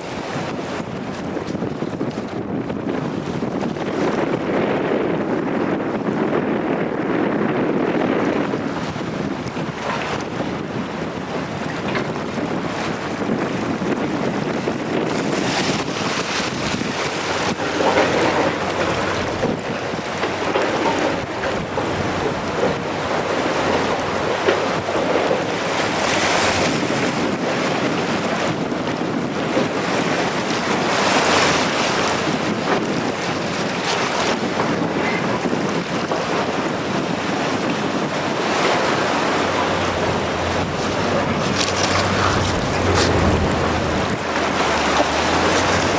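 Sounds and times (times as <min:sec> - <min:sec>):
surf: 0:00.0 - 0:45.9
wind buffeting microphone: 0:00.0 - 0:45.9
low hum: 0:39.2 - 0:44.8.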